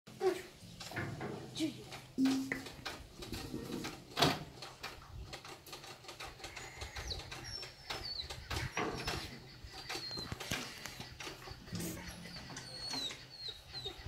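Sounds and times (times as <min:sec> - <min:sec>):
knocks and clicks: 0:02.2 - 0:06.5
birds whistling faintly: 0:06.4 - 0:14.0.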